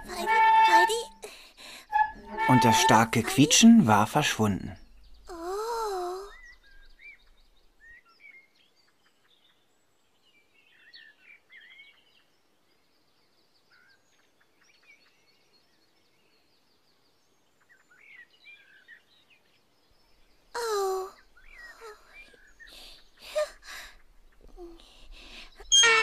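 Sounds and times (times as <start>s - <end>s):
faint birdsong chirps and whistles: 4.7s - 26.0s.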